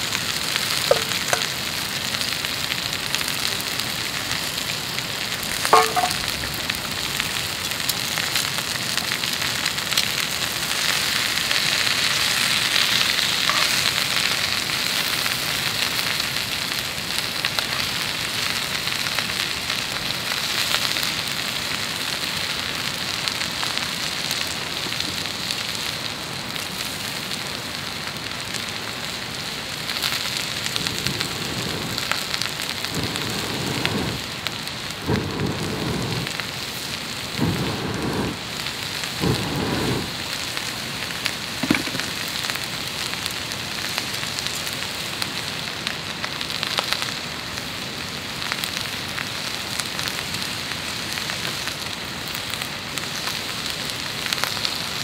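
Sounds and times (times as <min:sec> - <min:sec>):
food sizzling in a pan: 0:00.0 - 0:55.0.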